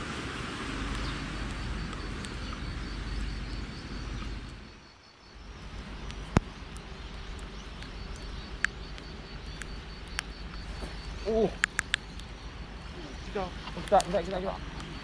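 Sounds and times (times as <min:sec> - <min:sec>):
wind noise on microphone: 0:00.0 - 0:04.8
sharp click: 0:11.6 - 0:12.3.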